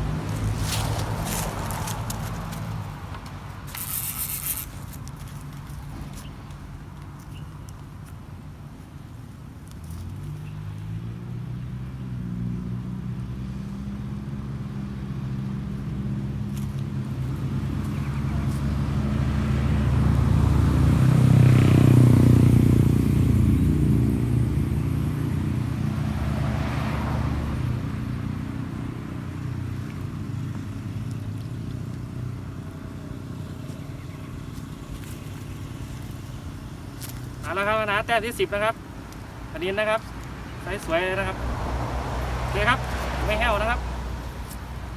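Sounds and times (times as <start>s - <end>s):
vehicle driving past: 17.2s - 31.4s, 39.3s - 44.9s.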